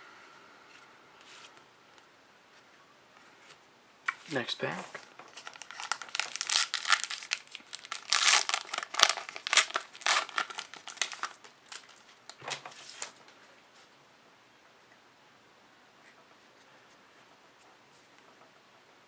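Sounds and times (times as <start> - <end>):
wrapper tearing and crinkling: 5.3 - 13.2.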